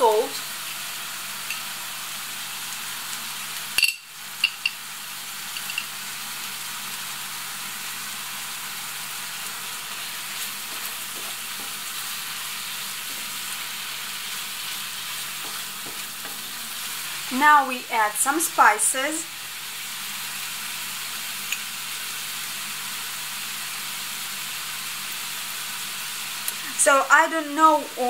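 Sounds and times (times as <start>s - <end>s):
food sizzling in a pan: 0.0s - 28.0s
wooden spatula stirring pan: 9.9s - 17.2s.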